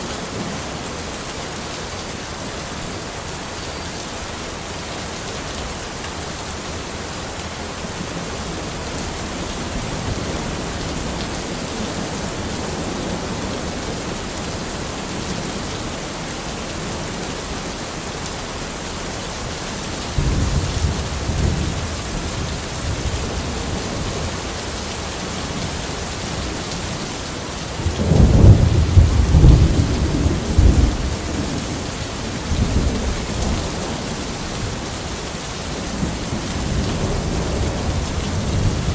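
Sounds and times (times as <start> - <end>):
steady rain falling: 0.0 - 38.9
thunder rumbling: 20.1 - 24.4, 27.7 - 34.8.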